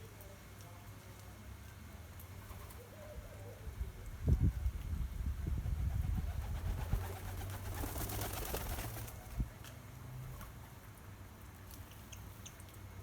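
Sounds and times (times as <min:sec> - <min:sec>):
bird wings fluttering: 0:05.8 - 0:09.4.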